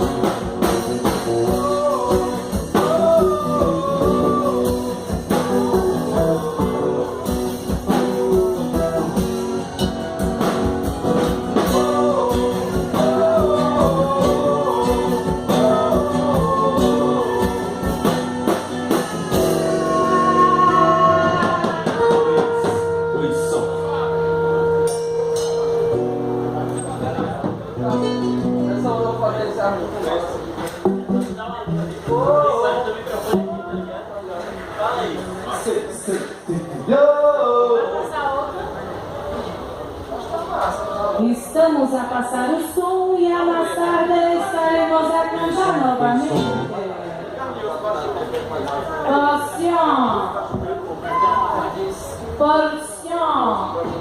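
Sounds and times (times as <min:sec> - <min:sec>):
drum kit: 0:00.0 - 0:24.0
guitar: 0:00.0 - 0:37.6, 0:39.0 - 0:54.0
person singing: 0:01.0 - 0:09.9, 0:11.5 - 0:24.8.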